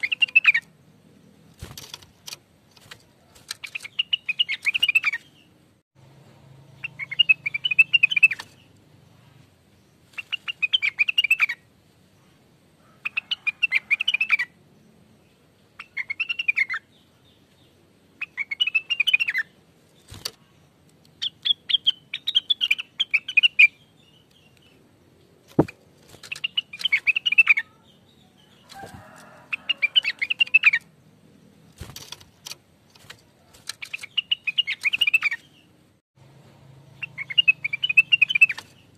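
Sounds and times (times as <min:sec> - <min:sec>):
leafbird singing twittering notes: 0:00.0 - 0:01.5, 0:03.1 - 0:05.6, 0:06.8 - 0:11.7, 0:13.0 - 0:32.4, 0:33.3 - 0:35.8, 0:36.8 - 0:38.9
sharp bird clicks: 0:01.5 - 0:05.3, 0:06.8 - 0:08.8, 0:25.4 - 0:27.6, 0:31.7 - 0:35.5, 0:37.0 - 0:38.9.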